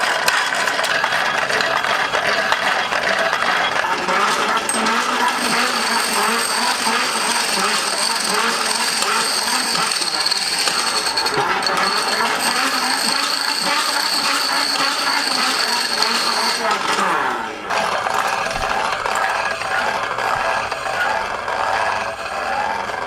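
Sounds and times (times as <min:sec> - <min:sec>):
grinder mechanism clattering: 0:00.3 - 0:18.3.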